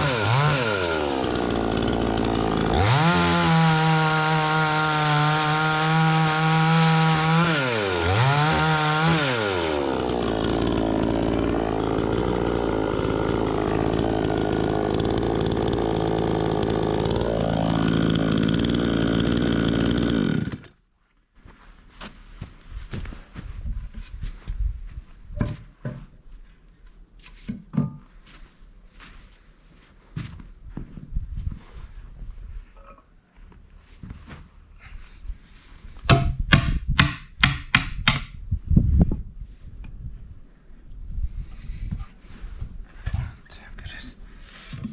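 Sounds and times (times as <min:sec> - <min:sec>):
chainsaw running at high revs: 0:00.0 - 0:20.7.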